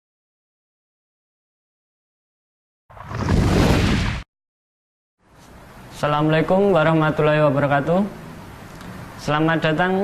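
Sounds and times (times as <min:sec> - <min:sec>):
rushing whoosh with rumble: 0:02.9 - 0:04.2.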